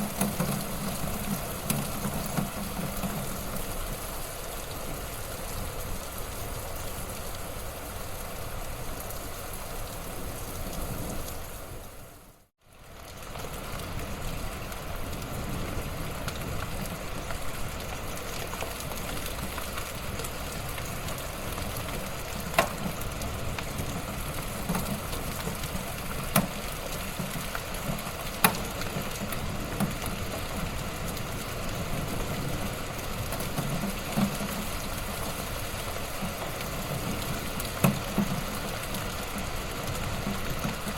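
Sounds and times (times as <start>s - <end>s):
wood fire crackling: 12.8s - 40.9s.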